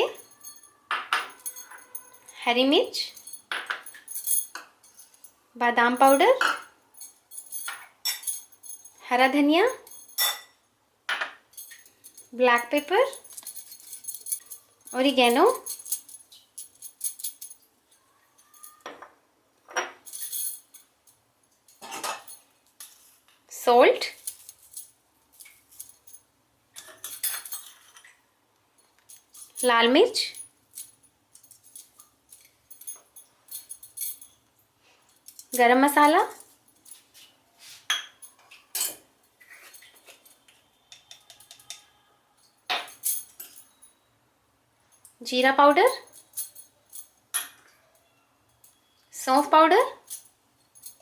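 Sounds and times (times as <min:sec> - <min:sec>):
spoon clinking against bowl: 0:40.8 - 0:42.0.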